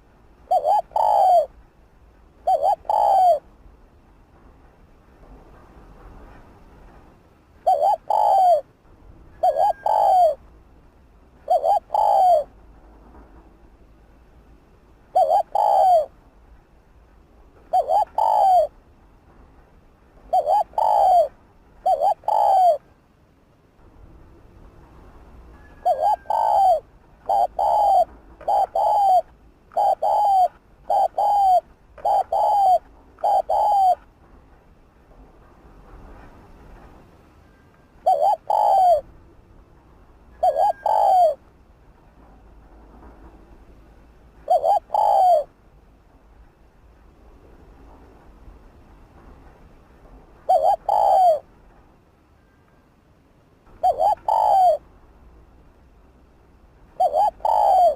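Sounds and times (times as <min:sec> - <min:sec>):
dove cooing: 0:00.0 - 0:01.5, 0:02.4 - 0:03.5, 0:07.6 - 0:08.7, 0:09.4 - 0:10.4, 0:11.4 - 0:12.6, 0:15.1 - 0:16.2, 0:17.7 - 0:18.8, 0:20.3 - 0:22.9, 0:25.6 - 0:34.1, 0:38.0 - 0:39.1, 0:40.4 - 0:41.4, 0:44.4 - 0:45.5, 0:50.5 - 0:51.5, 0:53.7 - 0:54.8, 0:57.0 - 0:57.9.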